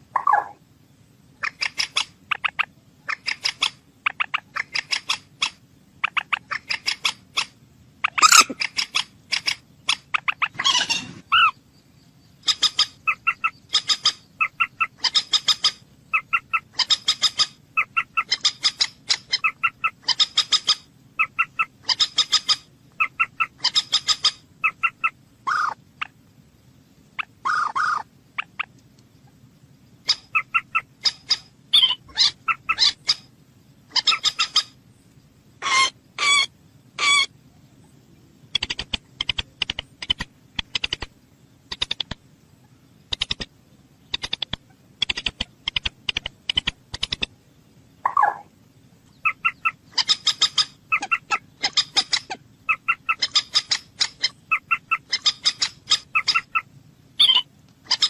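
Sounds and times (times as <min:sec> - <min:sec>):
moorhen calling: 0:00.0 - 0:00.7, 0:01.3 - 0:26.2, 0:27.2 - 0:34.8, 0:35.6 - 0:58.0
sharp clicking bird notes: 0:38.5 - 0:41.1, 0:41.7 - 0:42.2, 0:43.1 - 0:43.5, 0:44.1 - 0:47.3.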